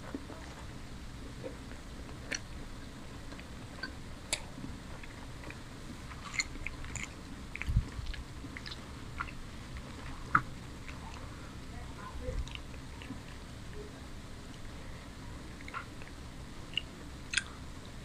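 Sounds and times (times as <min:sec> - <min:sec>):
person chewing food: 0:00.0 - 0:11.7, 0:12.3 - 0:13.8, 0:14.4 - 0:18.0
wet mouth clicks and smacks: 0:02.2 - 0:02.5, 0:06.2 - 0:11.3, 0:15.5 - 0:17.6.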